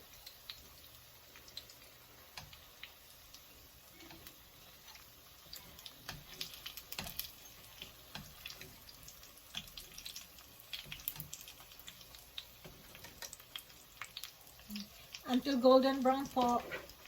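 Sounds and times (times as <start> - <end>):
food frying in hot oil: 0.0 - 17.0.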